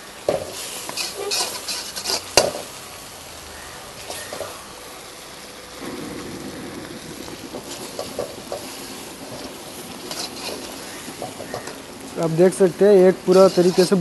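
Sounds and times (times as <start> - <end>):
gravy sizzling and bubbling: 0.0 - 14.0
ladle scraping a pan: 0.6 - 2.6, 7.6 - 11.8, 13.2 - 14.0.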